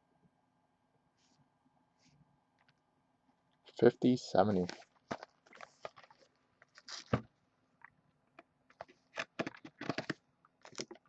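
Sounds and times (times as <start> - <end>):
small objects clicking and rustling: 8.7 - 11.0.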